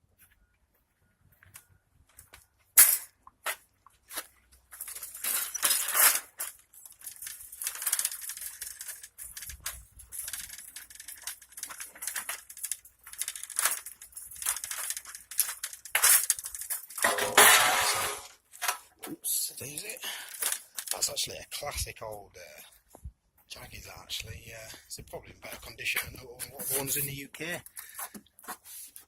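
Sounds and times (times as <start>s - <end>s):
footsteps crunching on gravel: 24.6s - 29.0s.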